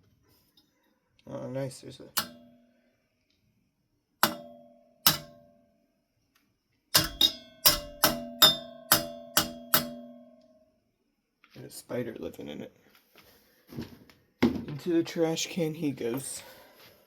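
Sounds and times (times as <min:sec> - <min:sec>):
knocking on metal fan part: 0:04.2 - 0:05.4, 0:07.0 - 0:10.2.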